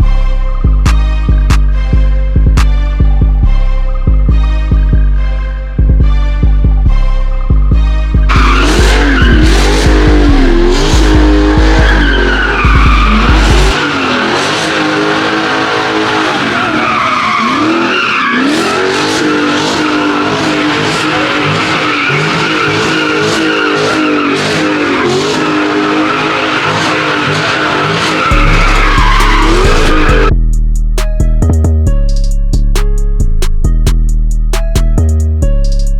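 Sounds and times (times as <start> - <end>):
music beat with heavy bass: 0.0 - 16.0, 26.9 - 35.9
car engine revving: 4.1 - 30.3
tyres squealing: 8.3 - 30.3.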